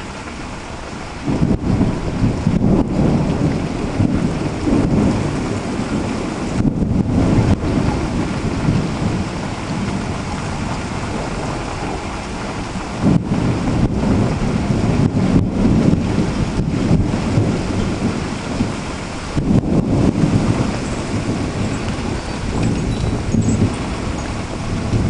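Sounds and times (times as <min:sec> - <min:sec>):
rain downpour: 0:00.0 - 0:25.0
thunder rumbling: 0:00.0 - 0:25.0.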